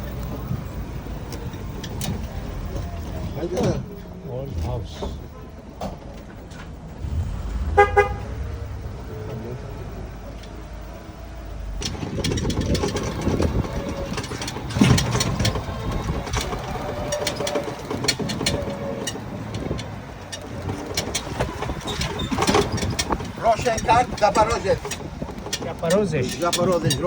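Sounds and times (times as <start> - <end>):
car engine running: 6.3 - 27.0
short clicks and rattles: 11.8 - 27.0.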